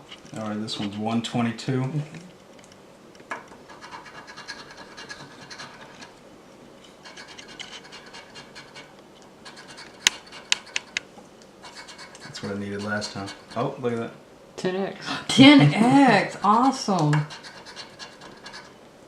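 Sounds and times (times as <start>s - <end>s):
lottery ticket being scratched: 7.1s - 11.0s, 11.6s - 13.8s, 15.4s - 18.8s.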